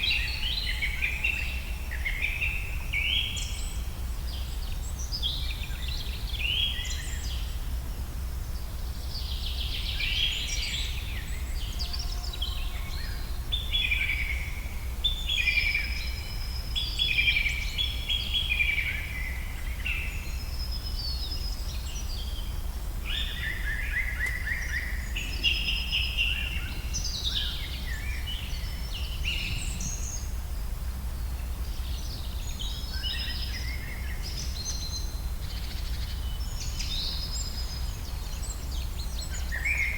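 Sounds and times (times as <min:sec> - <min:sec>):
birds singing and calling: 0:31.2 - 0:39.9.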